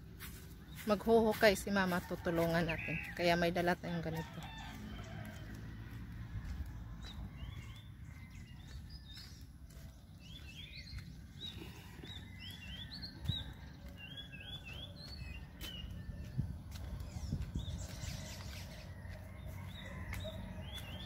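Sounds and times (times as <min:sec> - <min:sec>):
small birds chirping: 0:00.1 - 0:01.5, 0:06.5 - 0:21.0
steady low rumble: 0:12.9 - 0:21.0.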